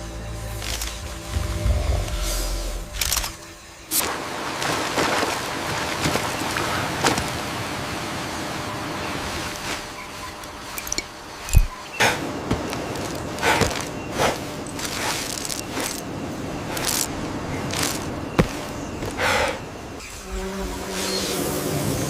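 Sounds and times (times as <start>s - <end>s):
rustling and scraping: 9.5s - 16.1s, 16.7s - 19.3s.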